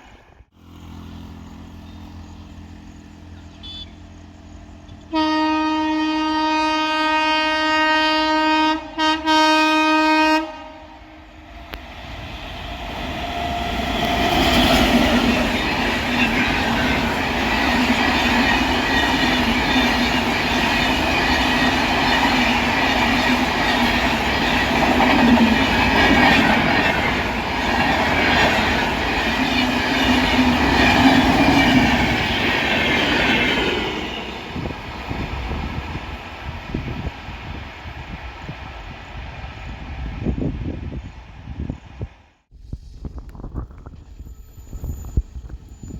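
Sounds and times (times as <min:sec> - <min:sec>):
train passing at speed: 0:00.0 - 0:42.5
locomotive horn blast: 0:03.5 - 0:04.1, 0:04.9 - 0:11.3.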